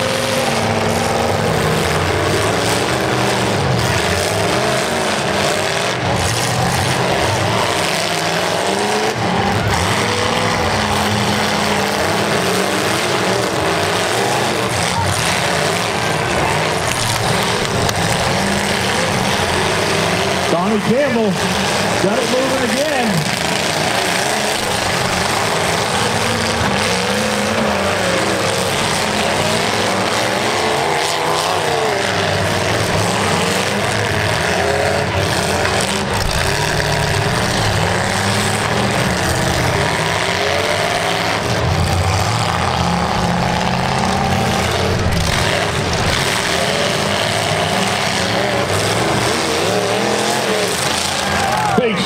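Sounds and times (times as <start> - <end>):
car engines revving hard: 0.0 - 52.0
tyres spinning in dirt: 0.0 - 52.0.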